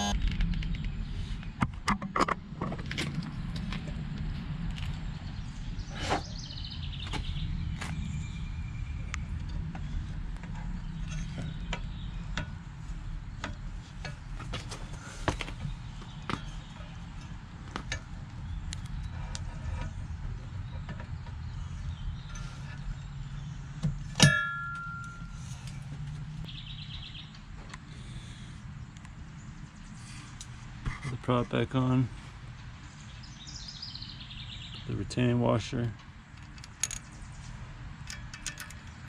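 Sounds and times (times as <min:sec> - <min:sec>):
steady low rumble: 0:00.0 - 0:24.2
loud ringing metallic clang: 0:24.1 - 0:25.4
metal parts clicking and clinking: 0:36.3 - 0:37.2, 0:38.0 - 0:39.0.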